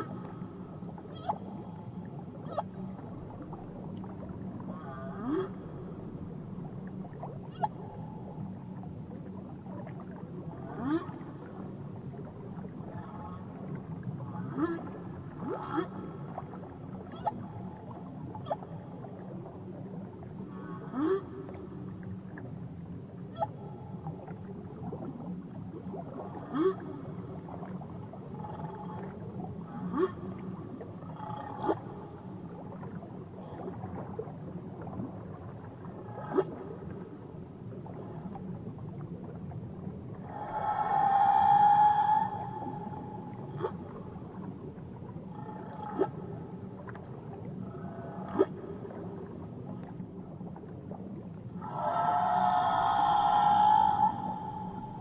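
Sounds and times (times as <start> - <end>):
whale calls underwater: 0.0 - 22.5, 23.2 - 55.0
low hiss of water: 23.1 - 55.0.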